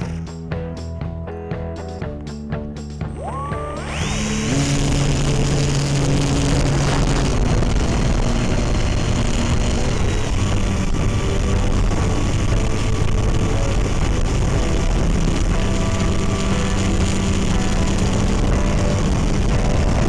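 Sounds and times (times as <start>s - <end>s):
model airplane motor whine: 3.4s - 20.0s.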